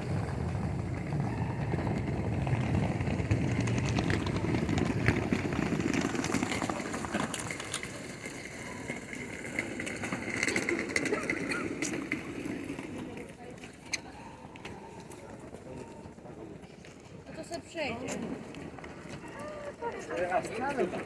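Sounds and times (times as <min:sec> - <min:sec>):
low train rumble: 0:00.0 - 0:13.4.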